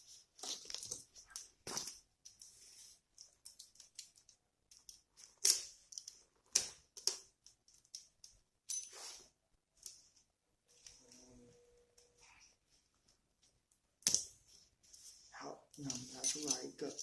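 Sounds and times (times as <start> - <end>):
pliers and wire clicking: 3.1 - 9.0, 15.8 - 17.0.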